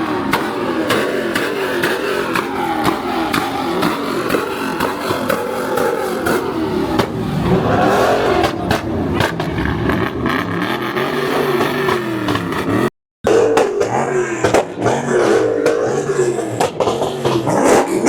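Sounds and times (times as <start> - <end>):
spinning tyres hissing: 0.0 - 12.8
car engine revving: 0.0 - 18.0.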